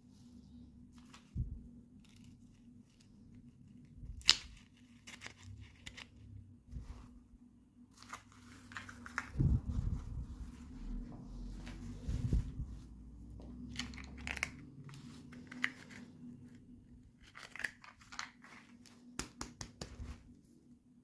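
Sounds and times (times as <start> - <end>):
packaging crinkling and tearing: 3.8 - 6.2, 13.7 - 16.5, 17.1 - 19.2
packaging clicks and rustles: 8.0 - 9.5, 13.7 - 19.1.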